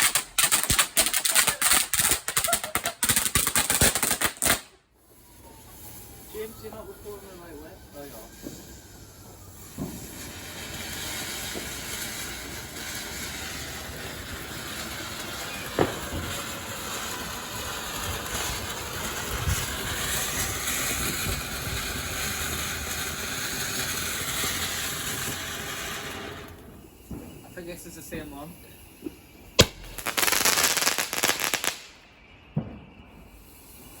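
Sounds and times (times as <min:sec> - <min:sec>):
sharp pops: 0:00.0 - 0:04.8, 0:29.0 - 0:31.9
firework fountain hissing: 0:00.0 - 0:34.0.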